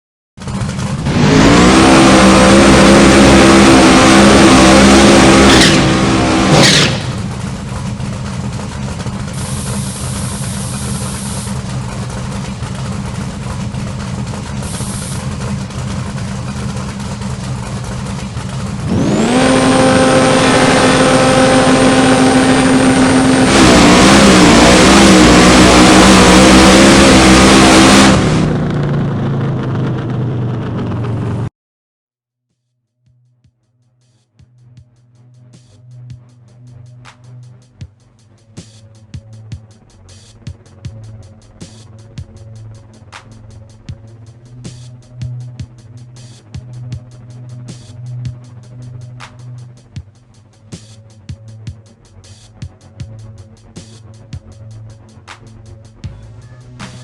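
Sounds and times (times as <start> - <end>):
car engine revving: 0.4 - 31.5, 38.5 - 51.5
supercharger whine: 0.4 - 31.5, 34.6 - 57.0.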